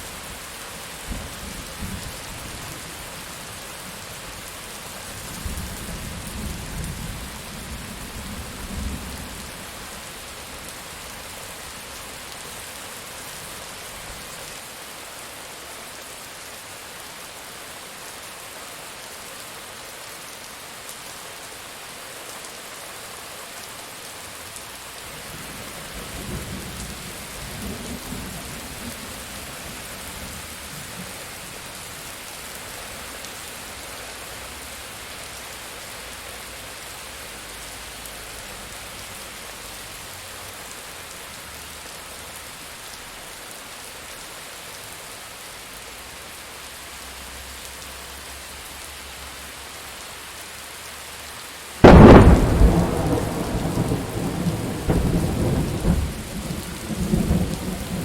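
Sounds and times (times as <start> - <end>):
heavy rain: 0.0 - 58.0
thunderclap and rumble: 51.8 - 58.0.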